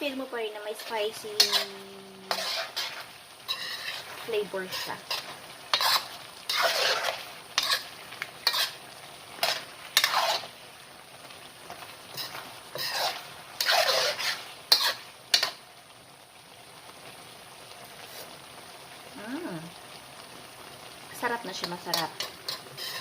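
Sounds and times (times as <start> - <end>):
food sizzling: 0.0 - 23.0
utensil scraping a pan: 0.7 - 8.8, 9.4 - 10.6, 12.1 - 15.6, 21.6 - 23.0.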